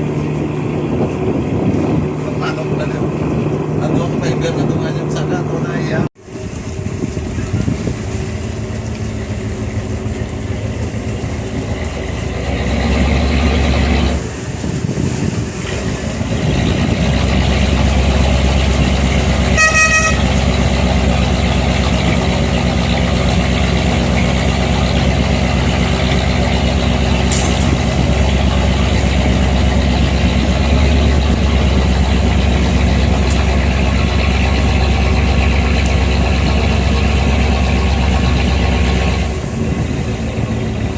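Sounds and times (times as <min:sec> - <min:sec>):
boat engine rumbling: 0:00.0 - 0:40.9
boat horn toot: 0:19.4 - 0:21.0.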